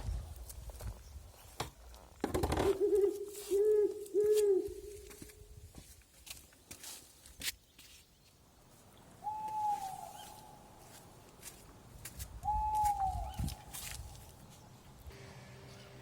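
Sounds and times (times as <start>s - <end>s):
bird whistling call: 9.2s - 10.5s, 12.4s - 13.5s.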